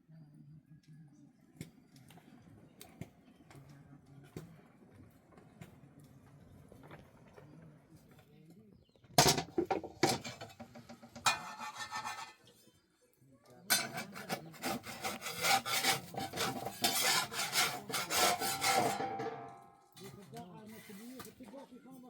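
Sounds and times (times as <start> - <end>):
rasping scraping strokes: 11.2 - 12.5, 13.7 - 19.2.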